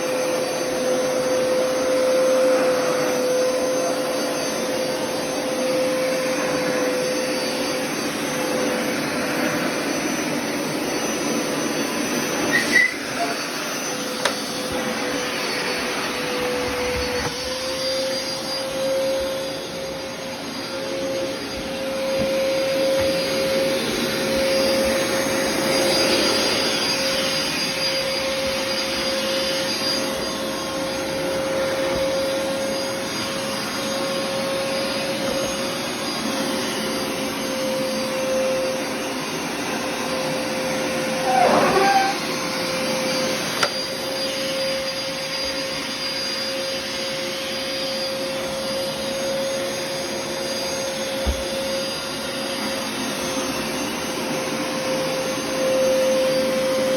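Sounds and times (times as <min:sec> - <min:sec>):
vacuum cleaner motor whining: 0:00.0 - 0:56.9
wavering squeal: 0:12.4 - 0:14.1, 0:15.2 - 0:34.1, 0:41.1 - 0:42.4.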